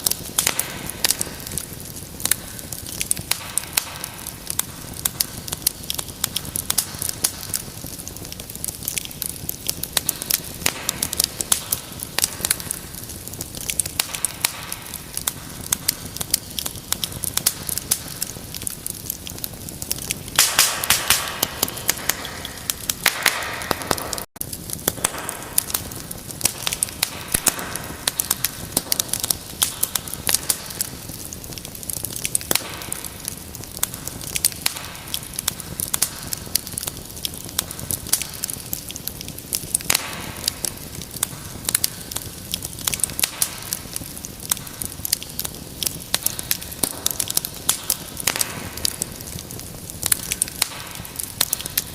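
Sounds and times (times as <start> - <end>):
wood fire crackling: 0.0 - 51.9.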